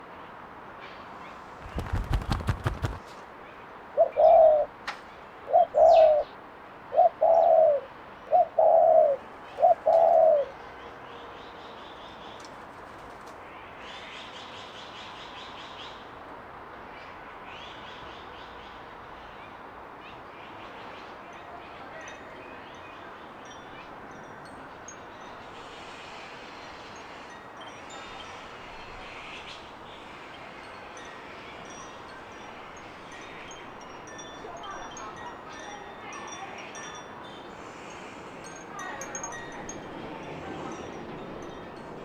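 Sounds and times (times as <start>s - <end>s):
songbirds chirping: 0.1s - 16.2s, 16.8s - 42.0s
dove cooing: 4.0s - 4.7s, 5.5s - 6.3s, 6.9s - 10.6s
outdoor hiss: 25.3s - 30.8s.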